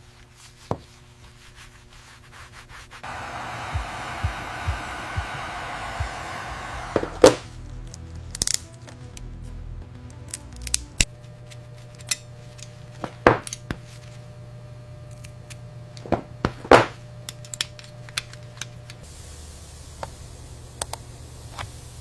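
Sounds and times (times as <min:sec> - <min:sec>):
low steady hum: 0:03.0 - 0:08.2
small tools clicking and tapping: 0:15.1 - 0:19.0.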